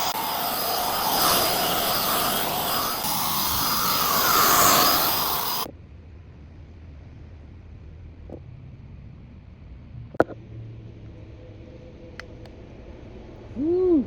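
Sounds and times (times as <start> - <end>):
whooshing machine noise: 0.0 - 5.7.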